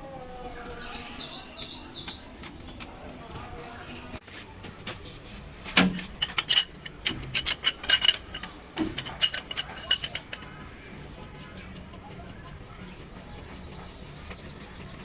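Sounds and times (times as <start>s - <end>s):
metal tools clinking and knocking: 5.8s - 10.6s.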